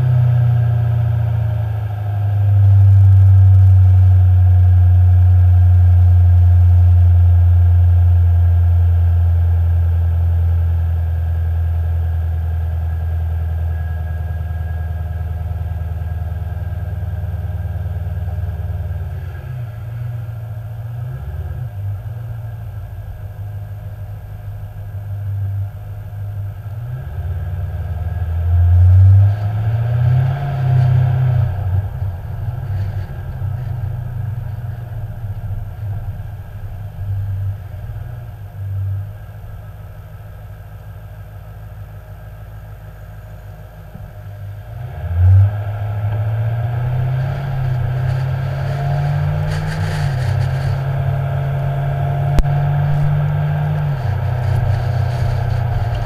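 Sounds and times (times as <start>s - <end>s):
car engine accelerating: 0.0s - 56.0s
wind noise on microphone: 47.0s - 56.0s.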